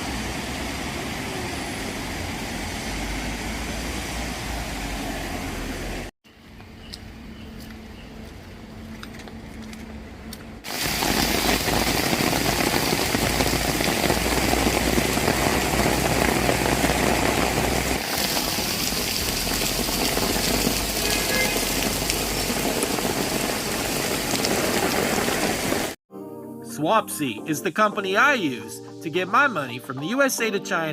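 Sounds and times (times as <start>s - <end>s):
rain hissing: 0.0s - 6.1s, 10.6s - 26.0s.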